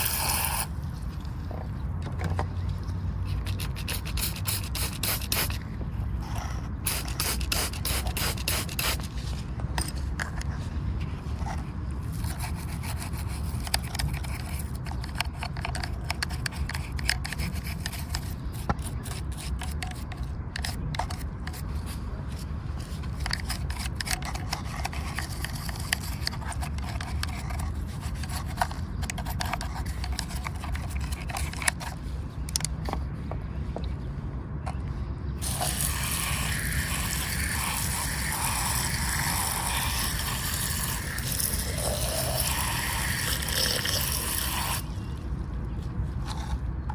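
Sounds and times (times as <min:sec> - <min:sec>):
water spray hissing: 0:00.0 - 0:00.7, 0:03.4 - 0:05.6, 0:06.8 - 0:09.2, 0:35.4 - 0:45.1
scraping and clicking on toy car: 0:00.0 - 0:05.6, 0:06.2 - 0:33.1, 0:35.4 - 0:46.9.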